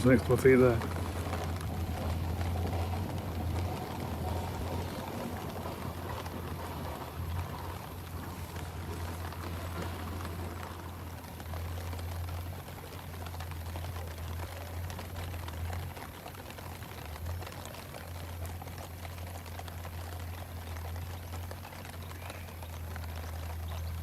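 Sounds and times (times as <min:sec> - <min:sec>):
faint water patter: 0:00.0 - 0:24.0.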